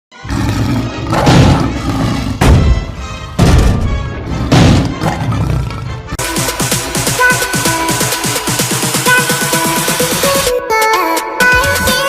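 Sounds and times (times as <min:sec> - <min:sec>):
deep booming music hits: 0:01.1 - 0:07.2.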